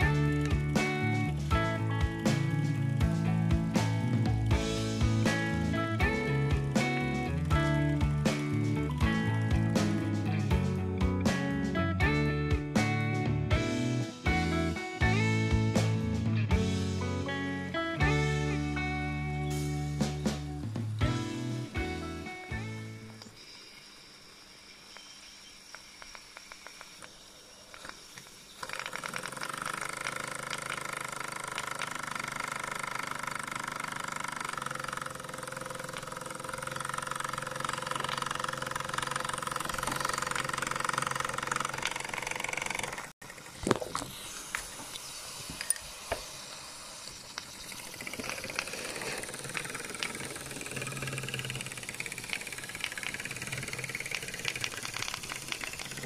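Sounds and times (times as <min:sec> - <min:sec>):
steam engine whirring and hissing: 0:00.0 - 0:10.7, 0:23.0 - 0:56.0
irregular mechanical clicks: 0:25.7 - 0:43.8, 0:47.3 - 0:56.0.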